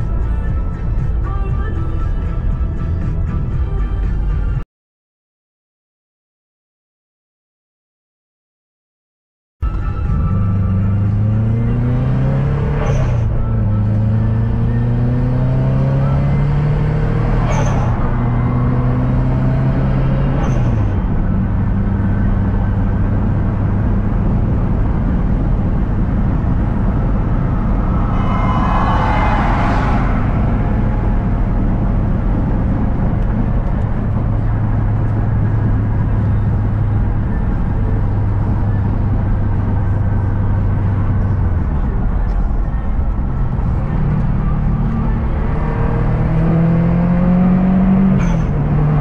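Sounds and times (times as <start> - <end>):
car engine accelerating: 9.6 - 49.0
surge of noise with whine: 25.8 - 33.6.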